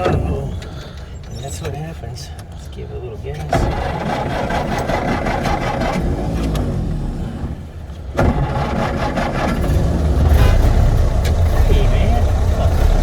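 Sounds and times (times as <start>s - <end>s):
truck engine pulling under throttle: 3.5s - 13.0s.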